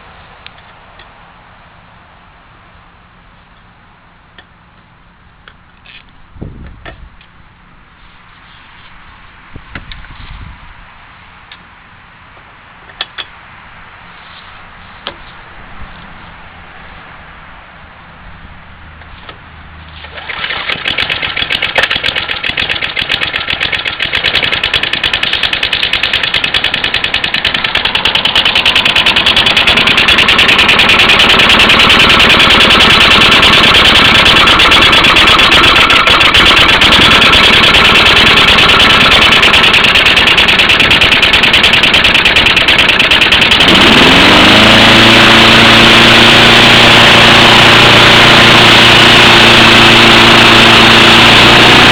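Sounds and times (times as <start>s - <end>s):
lawn mower engine running: 20.0s - 51.9s.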